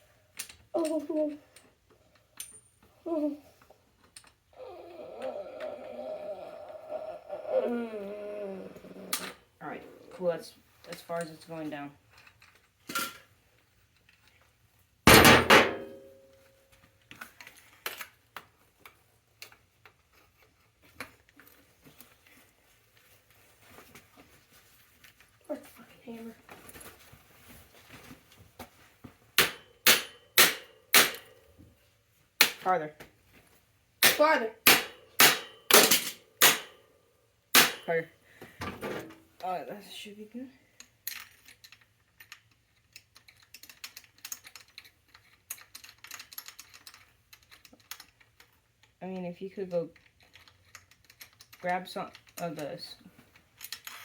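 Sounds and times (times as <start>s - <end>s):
hand tools clicking and knocking: 29.4s - 31.5s, 32.4s - 32.7s, 34.0s - 36.8s, 37.5s - 38.0s.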